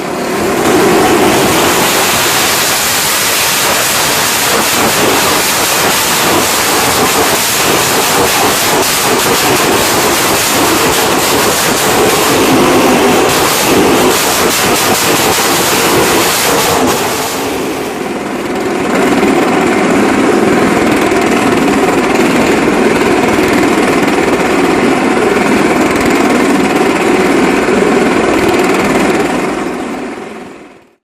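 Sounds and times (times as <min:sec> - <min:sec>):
rattling hiss: 0:00.0 - 0:18.2
motorcycle engines running hard: 0:00.0 - 0:30.1.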